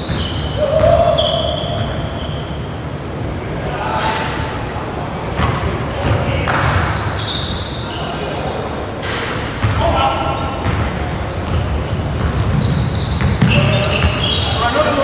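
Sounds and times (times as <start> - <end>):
basketball bouncing on court: 0.0 - 2.3, 9.6 - 15.0
sneaker squeaks: 0.0 - 15.0
players calling out: 9.6 - 15.0.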